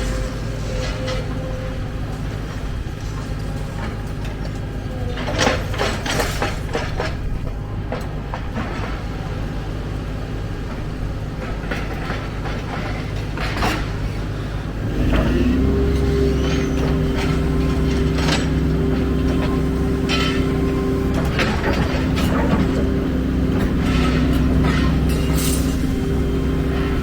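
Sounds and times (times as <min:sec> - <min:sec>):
excavator diesel engine running: 0:00.0 - 0:27.0
metallic clanks and rattles: 0:11.4 - 0:14.3, 0:15.1 - 0:27.0.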